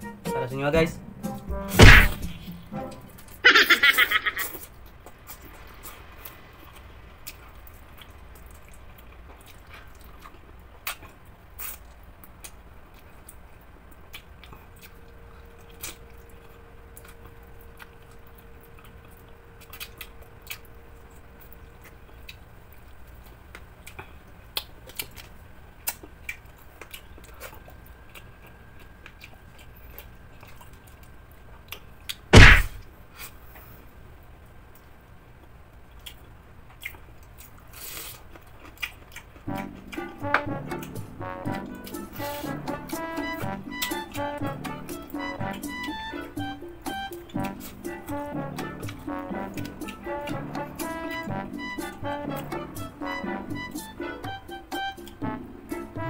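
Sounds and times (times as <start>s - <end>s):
loud knock: 1.6s - 2.6s, 32.4s - 32.8s
chewing with mouth clicks: 4.4s - 32.3s, 34.7s - 44.8s, 45.4s - 52.6s.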